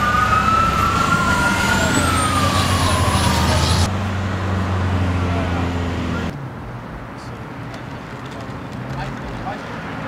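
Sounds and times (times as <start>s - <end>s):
emergency siren wailing: 0.0s - 3.9s.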